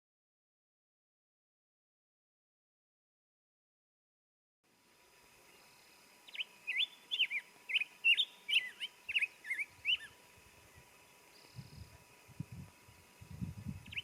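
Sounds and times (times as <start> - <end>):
songbird singing: 4.9 - 14.0.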